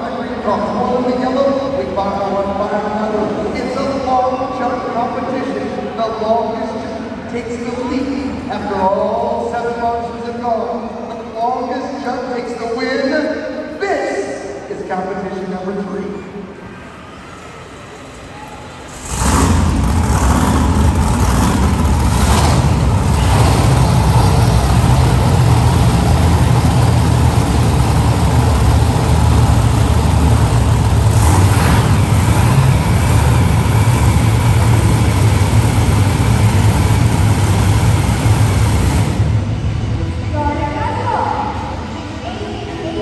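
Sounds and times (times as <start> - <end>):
truck engine running: 18.9 - 40.5.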